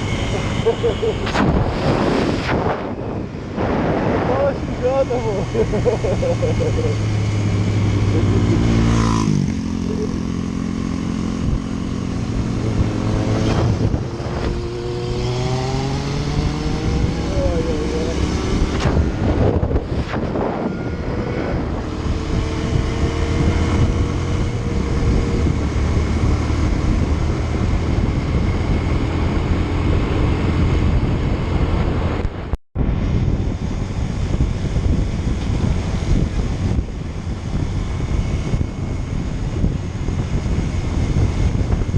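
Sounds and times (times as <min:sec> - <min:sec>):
motorcycle engines accelerating: 0:00.0 - 0:32.5
wind noise on microphone: 0:00.0 - 0:41.9.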